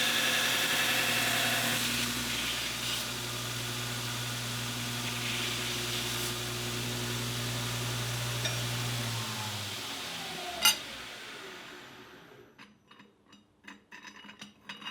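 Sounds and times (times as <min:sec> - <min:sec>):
machine motor humming: 0:00.0 - 0:12.5.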